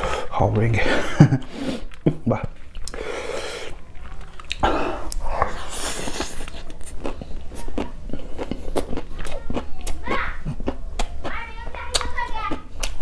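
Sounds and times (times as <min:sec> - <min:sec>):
crunchy chewing clicks: 0:01.9 - 0:03.0, 0:03.7 - 0:13.0.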